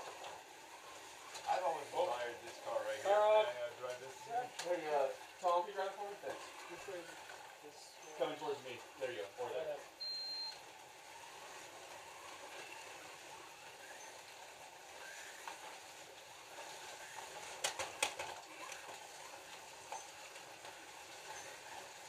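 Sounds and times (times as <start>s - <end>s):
slot car motors whirring: 0.0s - 22.0s
sharp plastic clacks: 17.4s - 19.0s.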